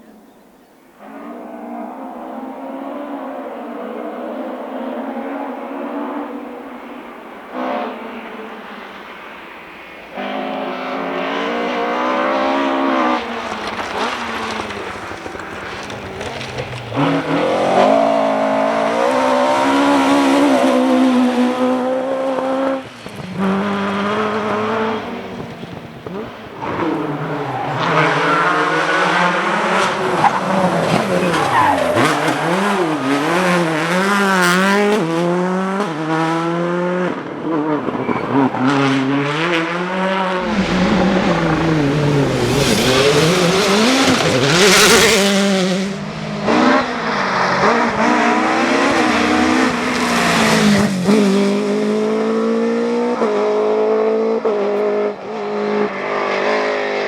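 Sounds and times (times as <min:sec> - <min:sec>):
rally car engines revving: 0:00.9 - 0:57.0
tyre squeal: 0:26.6 - 0:29.2, 0:37.8 - 0:39.4.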